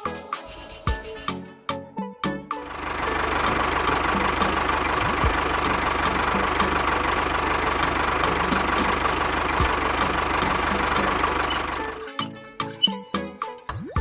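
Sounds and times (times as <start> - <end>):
music: 0.0 - 14.0
engine idling: 2.6 - 14.0
light regular ticking: 10.4 - 14.0.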